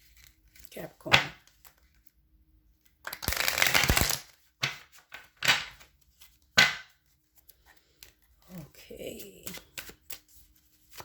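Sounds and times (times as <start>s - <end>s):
cards riffle shuffling: 3.0s - 4.9s, 9.2s - 11.0s.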